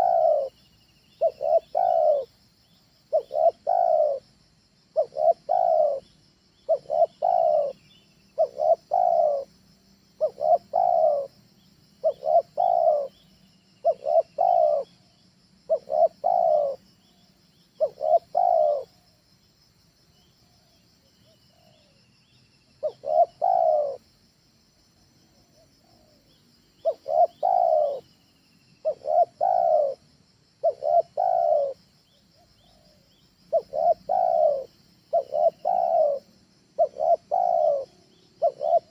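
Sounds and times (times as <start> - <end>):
dove cooing: 0.0 - 0.6, 1.2 - 2.4, 3.1 - 4.2, 5.0 - 9.5, 10.2 - 11.4, 12.0 - 13.2, 13.8 - 15.1, 15.7 - 16.9, 17.8 - 19.1, 20.6 - 22.0, 22.8 - 24.0, 25.5 - 28.2, 28.8 - 31.8, 32.4 - 38.9
faint small bird chirps: 0.0 - 4.2, 4.9 - 9.5, 10.2 - 11.4, 12.0 - 19.5, 20.1 - 24.0, 25.2 - 38.9.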